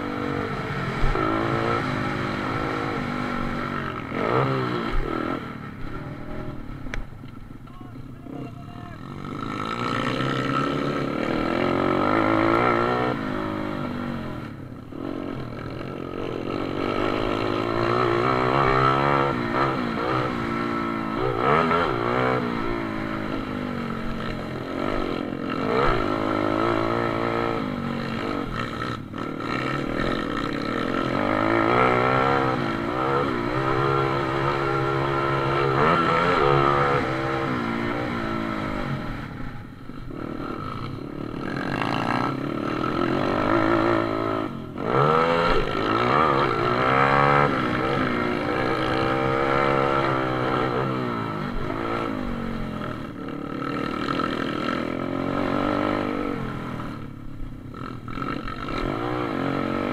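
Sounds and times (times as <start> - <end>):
pit bike engines revving: 0.0 - 59.9.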